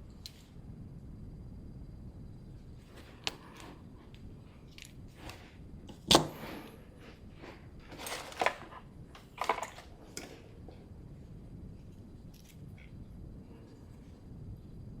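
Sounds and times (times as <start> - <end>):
snapping: 4.7 - 6.8
tool clicks and scraping: 5.2 - 6.8
wire cutter snip: 5.9 - 6.7.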